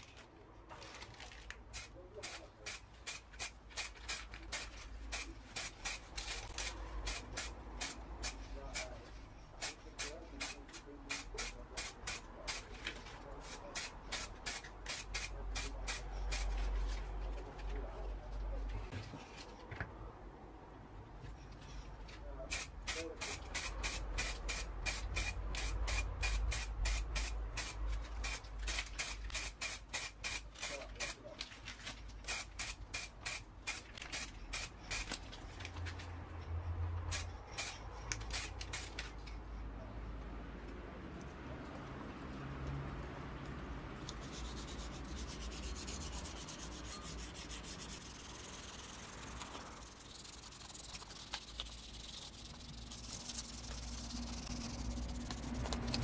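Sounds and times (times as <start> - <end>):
spray paint can puffs: 1.6 - 12.8, 13.4 - 16.6, 22.5 - 31.3, 32.2 - 35.3, 37.1 - 39.1, 44.0 - 56.0.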